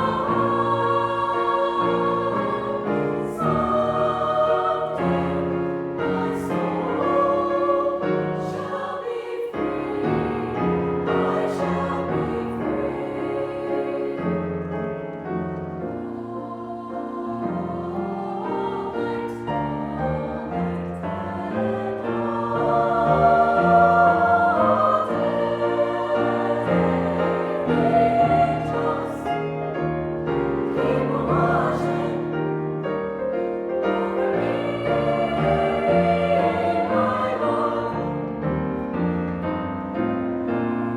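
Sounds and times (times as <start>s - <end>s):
choir singing in harmony: 0.0s - 40.9s
piano: 0.0s - 40.9s.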